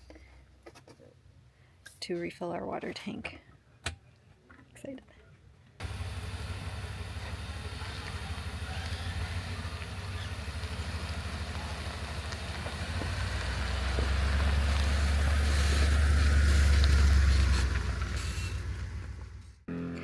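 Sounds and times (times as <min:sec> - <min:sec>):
pickup truck engine rumble: 0:05.8 - 0:20.0
road noise: 0:05.8 - 0:20.0.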